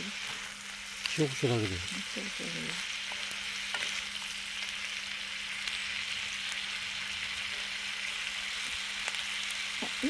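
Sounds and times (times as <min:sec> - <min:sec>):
food sizzling and popping: 0:00.0 - 0:10.0.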